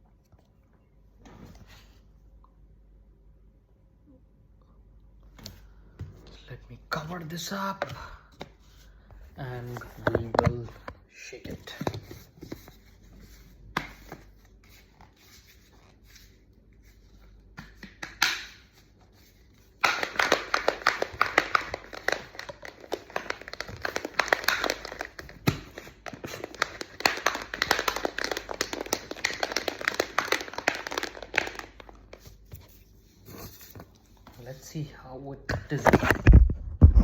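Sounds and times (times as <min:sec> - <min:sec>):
shaker bottle rattling: 0:19.2 - 0:32.8.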